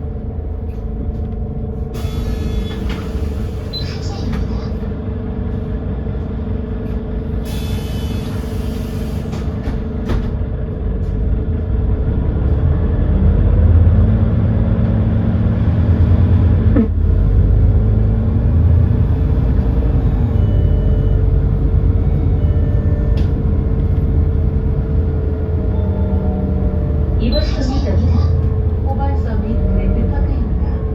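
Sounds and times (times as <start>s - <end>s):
bus engine rumble: 0.0s - 30.9s.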